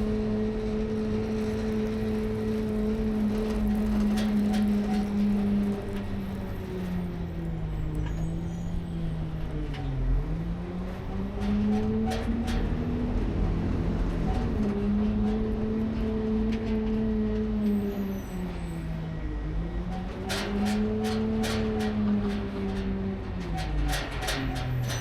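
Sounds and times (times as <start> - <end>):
garbage truck engine revving: 0.6 - 8.4.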